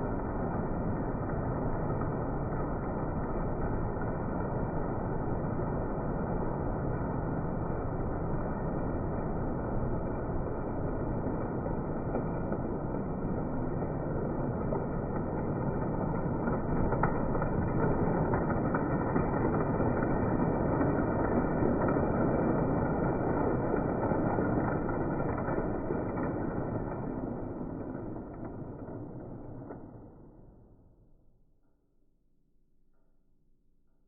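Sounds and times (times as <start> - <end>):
toy train running on track: 7.6 - 29.7.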